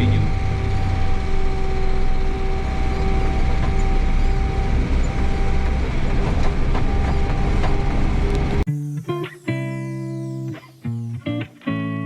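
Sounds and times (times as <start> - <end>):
diesel engine running: 0.0 - 8.7
drivetrain noise: 0.0 - 11.9.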